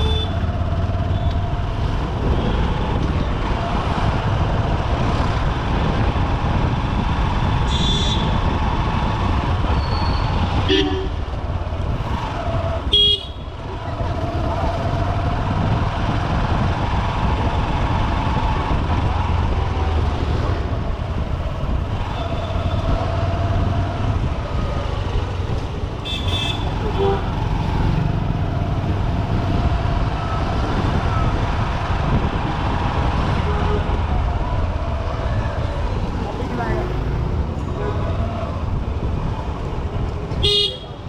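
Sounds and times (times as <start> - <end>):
vehicle horns tooting: 0.0 - 0.5, 7.7 - 8.4, 9.9 - 11.2, 12.9 - 13.5, 26.0 - 27.4, 40.4 - 41.0
road noise: 0.0 - 41.0.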